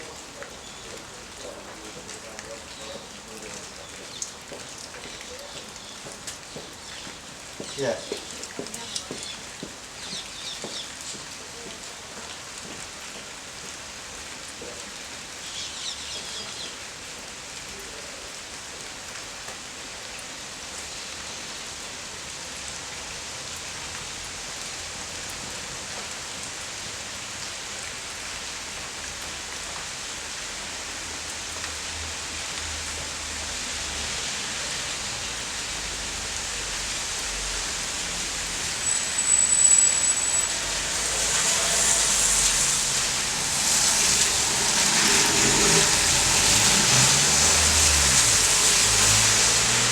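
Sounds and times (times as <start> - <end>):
rain falling: 0.0 - 49.9
faint high chirps: 38.8 - 40.7
short high thin tone: 38.8 - 40.8.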